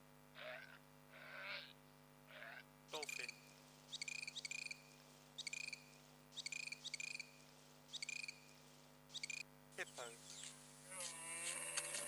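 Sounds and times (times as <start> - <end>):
faint steady hum: 0.0 - 12.0
small animal buzzy chirps: 2.4 - 9.4.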